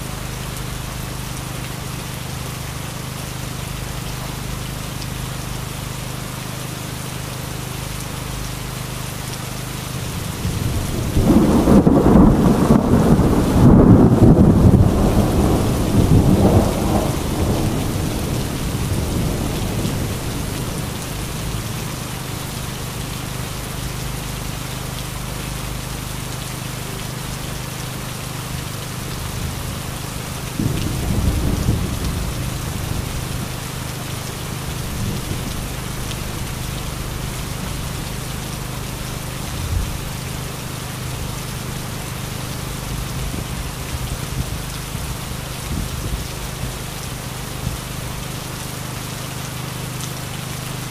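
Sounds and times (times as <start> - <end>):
heavy rain pouring: 0.0 - 50.9
thunder rumbling: 10.1 - 22.3, 30.5 - 33.6.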